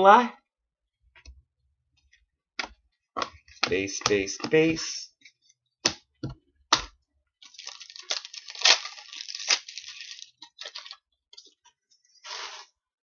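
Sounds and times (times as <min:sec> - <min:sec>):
cards and packaging rustling: 0:07.4 - 0:11.6.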